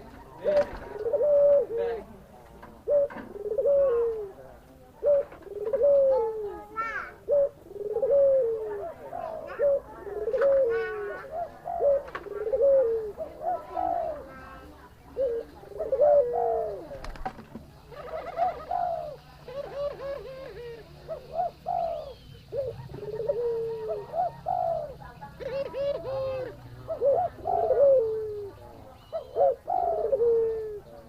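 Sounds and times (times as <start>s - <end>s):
dove cooing: 0.0s - 31.0s.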